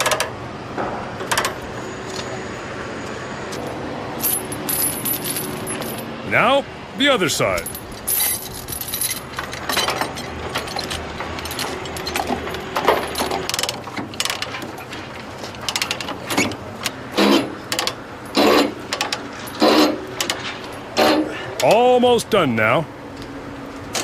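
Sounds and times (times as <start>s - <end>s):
steel chains clinking: 4.2s - 6.1s, 7.1s - 14.9s.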